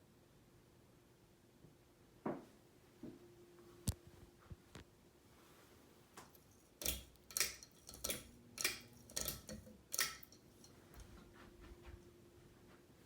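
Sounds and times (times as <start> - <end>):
faint steady hum: 0.0 - 13.0
sharp ringing clicks: 6.4 - 10.8.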